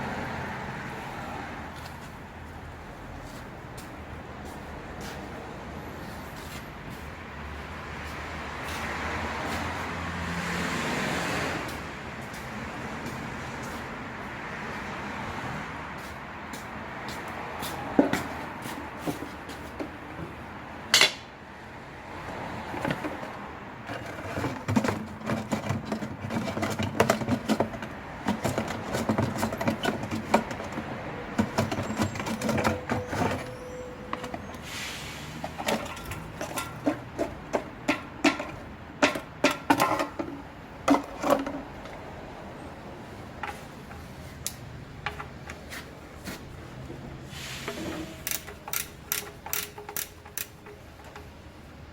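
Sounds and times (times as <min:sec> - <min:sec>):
hand tools clicking on metal: 0:47.7 - 0:51.5.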